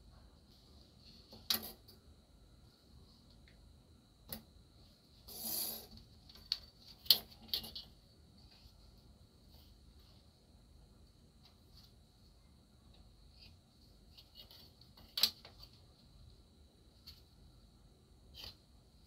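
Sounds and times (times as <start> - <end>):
faint high hiss: 0.0 - 19.0
small metal parts clicking: 5.3 - 8.0.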